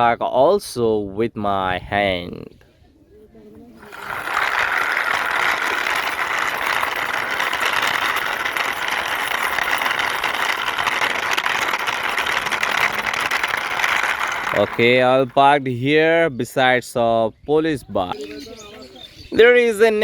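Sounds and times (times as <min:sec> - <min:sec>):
plastic toy wheels rattling: 0:03.8 - 0:15.5.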